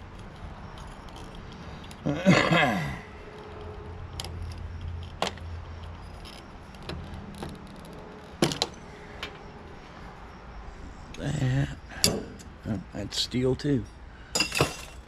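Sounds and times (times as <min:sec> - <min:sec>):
metal tools clicking and clinking: 0:00.0 - 0:09.4, 0:12.0 - 0:12.7, 0:13.7 - 0:15.0.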